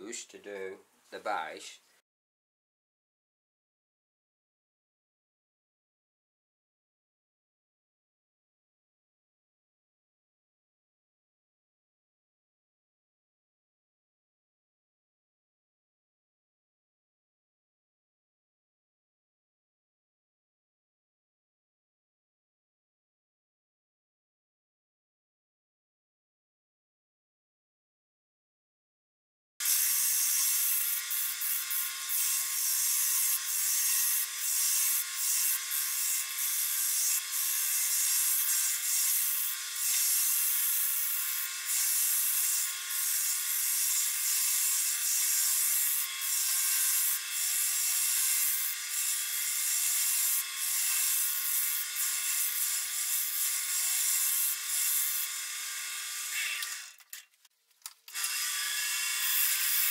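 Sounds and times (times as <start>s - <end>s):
tool hissing against spinning wood: 29.6s - 55.3s.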